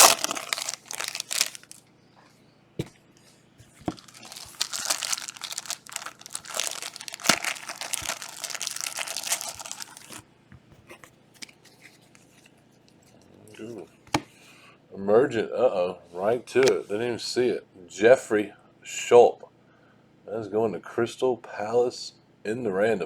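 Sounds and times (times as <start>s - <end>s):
foil wrappers crinkling and tearing: 0.0s - 1.8s, 3.8s - 10.2s.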